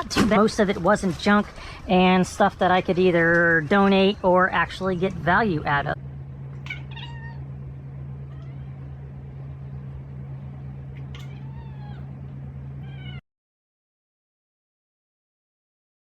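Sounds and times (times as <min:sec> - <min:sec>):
low hum: 0:00.0 - 0:13.2
cat meowing: 0:06.6 - 0:07.5, 0:08.3 - 0:08.9, 0:11.0 - 0:12.2, 0:12.8 - 0:13.2.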